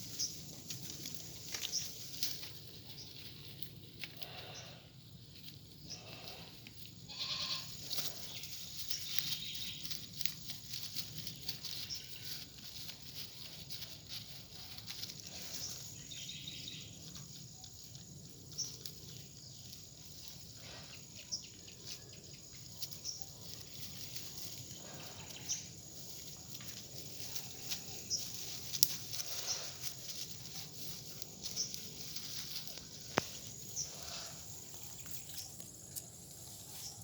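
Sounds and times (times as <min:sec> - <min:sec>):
small clicks and rustles: 0:00.0 - 0:04.4, 0:06.2 - 0:16.0, 0:22.8 - 0:33.8
goats bleating: 0:07.1 - 0:08.0.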